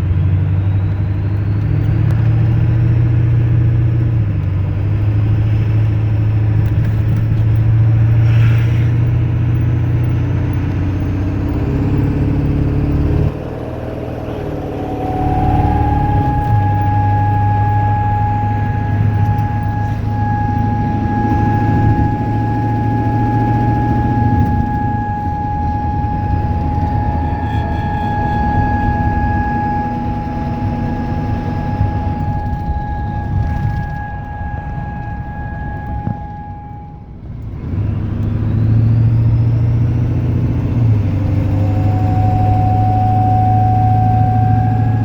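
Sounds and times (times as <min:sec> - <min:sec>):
diesel engine running: 0:00.0 - 0:45.0
high-pitched dashboard chime: 0:09.4 - 0:45.0.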